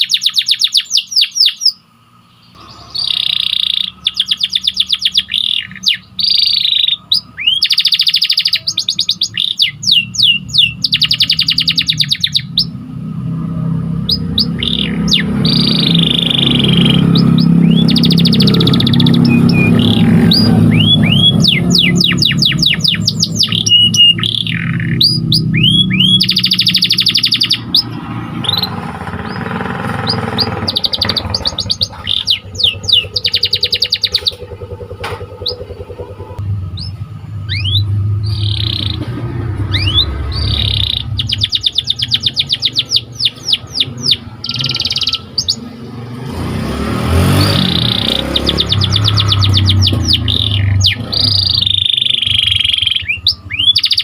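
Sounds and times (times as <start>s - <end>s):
canary singing: 0.0s - 54.0s
low hum: 12.7s - 44.5s.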